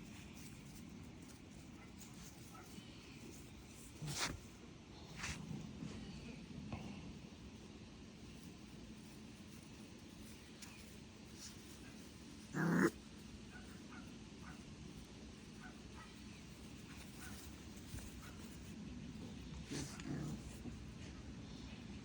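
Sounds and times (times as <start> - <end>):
dog barking: 13.5 - 14.6, 15.6 - 16.2, 17.2 - 17.5.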